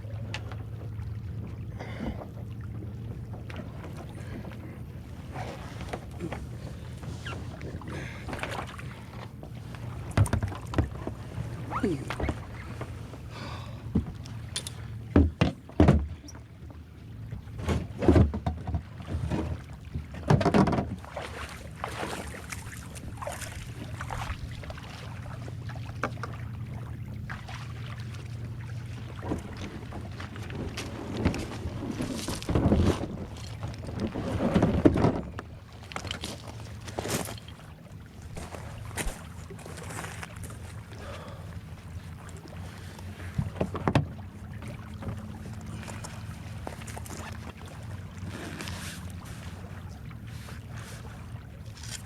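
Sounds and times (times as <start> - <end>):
water lapping around boat: 0.0 - 52.0
paddle knocking hull: 0.2 - 16.3, 17.6 - 24.9, 43.0 - 46.9.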